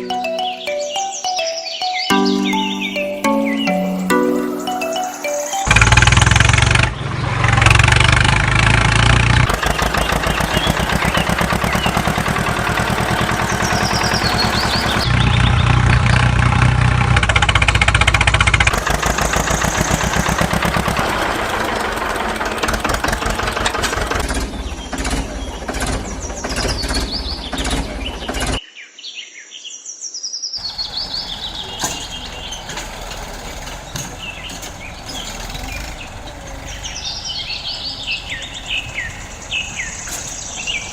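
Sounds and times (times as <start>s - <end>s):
birds chirping: 0.0s - 16.4s, 18.7s - 28.8s, 30.4s - 40.9s
small engine running: 5.6s - 28.6s, 30.6s - 40.9s.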